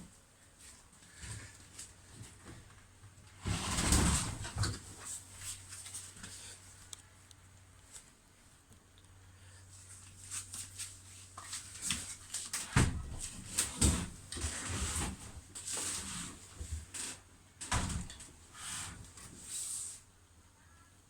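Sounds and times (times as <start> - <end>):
washing machine scraping and knocking: 3.3 - 5.0, 12.8 - 19.5.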